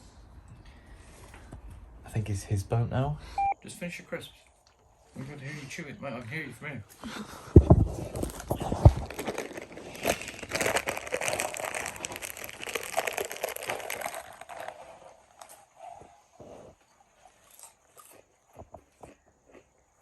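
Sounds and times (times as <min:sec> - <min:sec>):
crisp packet crinkling: 0:07.6 - 0:15.6
crisps crunching: 0:07.6 - 0:16.4, 0:17.2 - 0:19.9.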